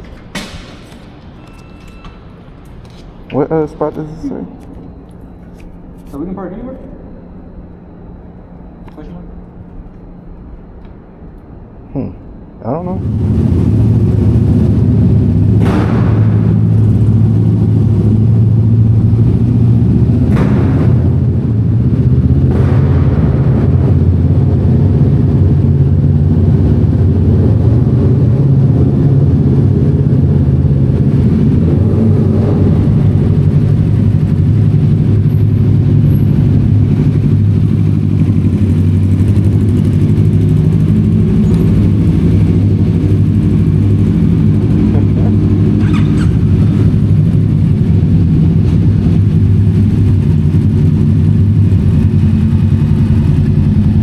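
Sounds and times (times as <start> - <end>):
motorbike engine running: 13.0 - 54.0
sharp knocks: 15.6 - 18.0, 20.1 - 24.9.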